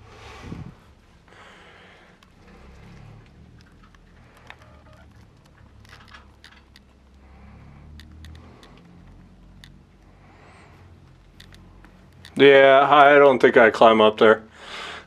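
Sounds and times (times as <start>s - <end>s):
small clicks of gear: 2.1s - 10.2s, 10.8s - 12.4s.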